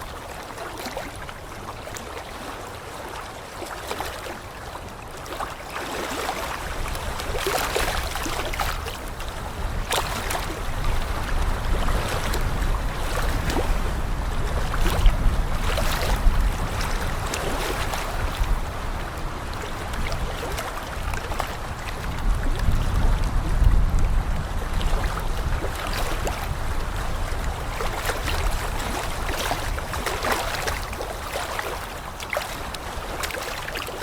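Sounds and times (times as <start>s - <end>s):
water splashing and rushing: 0.0s - 34.0s
wind rumble: 6.8s - 31.0s.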